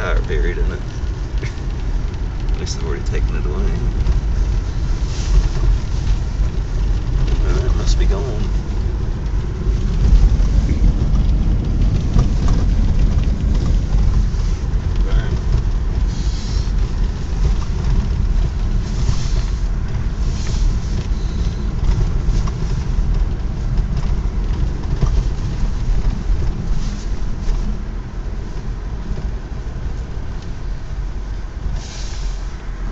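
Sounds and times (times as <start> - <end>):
car engine and road rumble: 0.0 - 32.9
brief hisses: 31.8 - 32.5.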